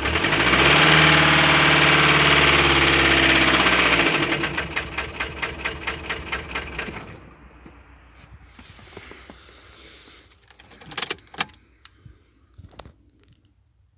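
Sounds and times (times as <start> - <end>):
diesel engine knocking and stalling: 0.0 - 8.1
sharp clicks and clunks: 10.3 - 12.0.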